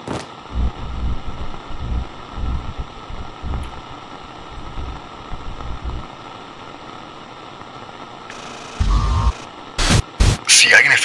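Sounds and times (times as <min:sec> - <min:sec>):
walkie-talkie radio static: 0:08.3 - 0:11.0.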